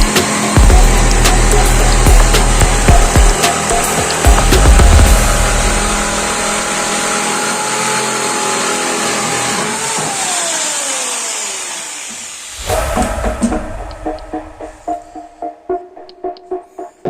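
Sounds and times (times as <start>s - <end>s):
drill press motor whining: 0.0s - 12.6s.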